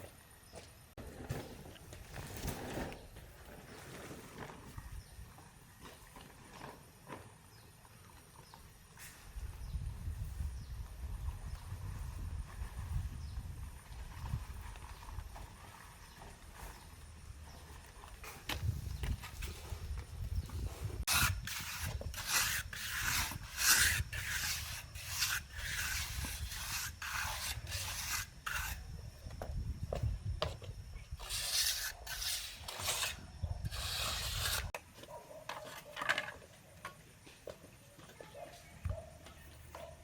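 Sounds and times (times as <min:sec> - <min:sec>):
hand tool scraping concrete: 0:19.2 - 0:29.0, 0:31.2 - 0:34.8.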